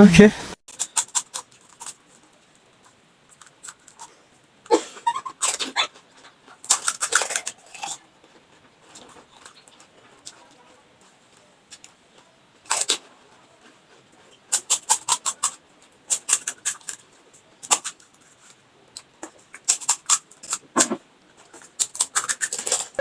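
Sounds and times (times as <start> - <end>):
crunching fried snack shells: 5.3 - 10.6, 12.6 - 13.1, 14.5 - 20.8, 21.4 - 23.0.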